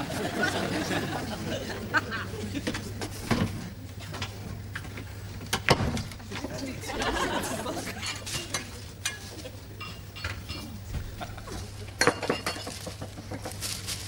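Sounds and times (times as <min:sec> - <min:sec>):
tableware clinking and clattering: 0:07.0 - 0:13.6.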